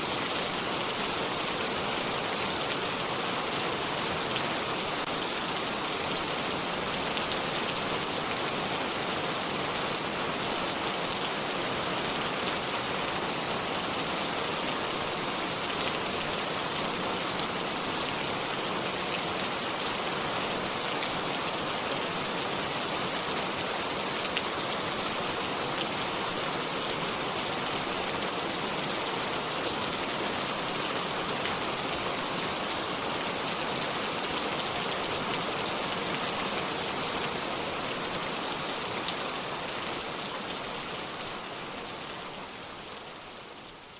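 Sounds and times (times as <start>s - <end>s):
steady rainfall: 0.0s - 43.9s.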